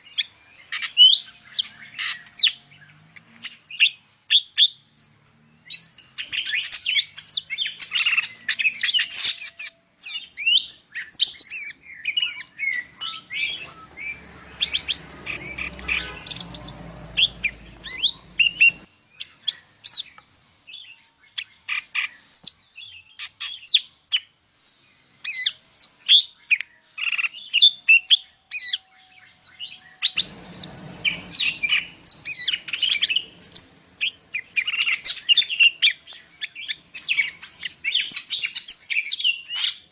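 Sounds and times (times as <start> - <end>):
bird singing varied chirps: 0.0 - 39.9.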